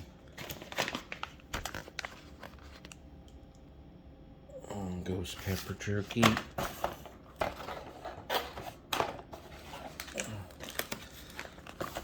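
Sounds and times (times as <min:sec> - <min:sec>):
plastic packets crinkling: 0:00.0 - 0:03.0, 0:09.8 - 0:12.0.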